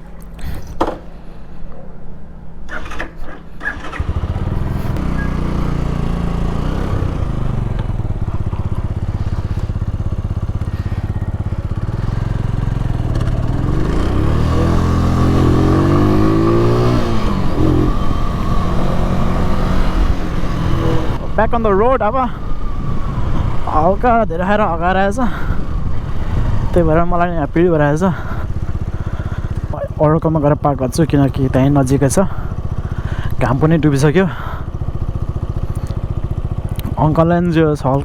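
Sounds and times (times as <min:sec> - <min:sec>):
motorcycle engine running: 0:03.6 - 0:38.0.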